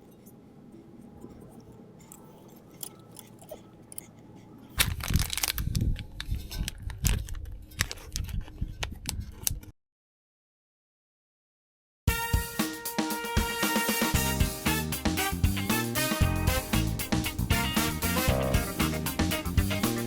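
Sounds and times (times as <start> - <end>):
crunching and rustling handling noise: 0.0 - 9.6.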